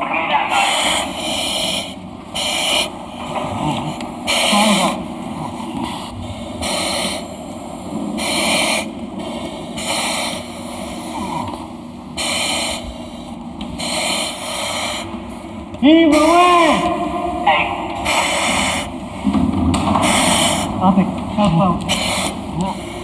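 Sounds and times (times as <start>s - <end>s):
steady background noise: 0.0s - 23.0s
breathing apparatus hiss: 0.5s - 15.4s, 18.0s - 19.1s, 20.0s - 20.8s, 21.8s - 23.0s.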